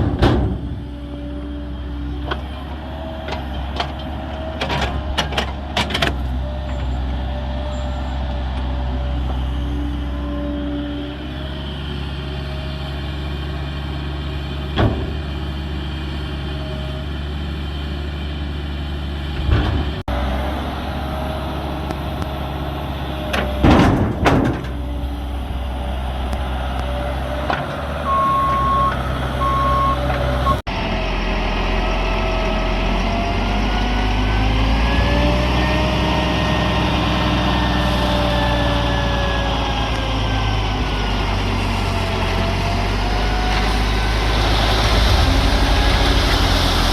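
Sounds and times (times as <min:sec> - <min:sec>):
loud knocks and crashes: 0:00.0 - 0:00.9, 0:23.5 - 0:24.8, 0:43.9 - 0:46.9
diesel machinery engine running: 0:00.0 - 0:46.9
short beeps: 0:28.1 - 0:30.6.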